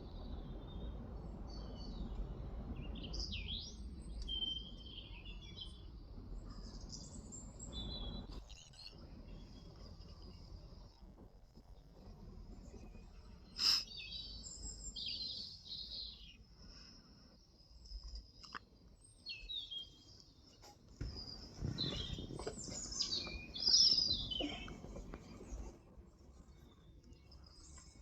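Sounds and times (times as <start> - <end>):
small birds chirping: 0.0 - 28.0
low rustling: 21.0 - 26.0.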